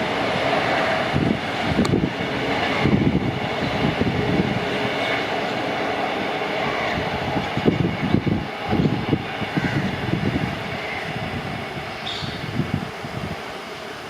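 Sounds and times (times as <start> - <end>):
train knocks and clatter: 0.0 - 13.4
train wheels rumbling on rails: 0.0 - 14.0.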